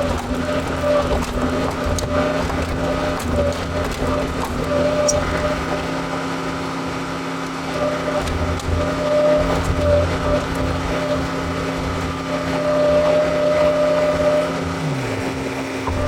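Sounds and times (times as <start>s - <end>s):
diesel engine running under work: 0.0s - 16.0s
high mechanical whine: 0.0s - 16.0s.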